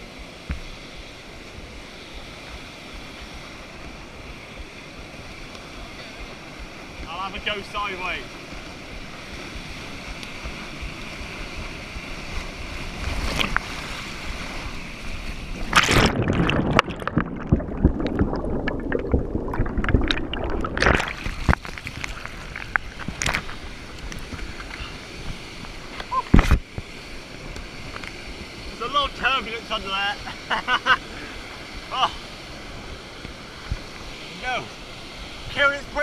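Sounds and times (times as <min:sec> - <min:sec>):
muffled underwater water: 0:00.0 - 0:29.2, 0:31.3 - 0:36.0
rushing water: 0:00.0 - 0:36.0
paddle splashes: 0:05.1 - 0:29.2
loud splash: 0:15.5 - 0:23.6.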